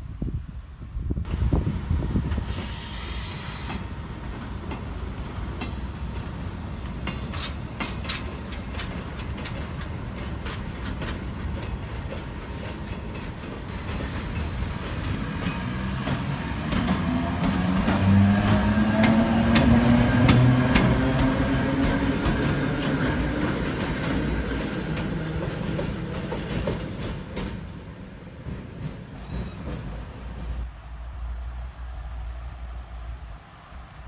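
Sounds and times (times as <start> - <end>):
freight train rolling on track: 0.0 - 34.0
short air hiss: 2.3 - 4.0
train wheel clacks: 2.3 - 30.4.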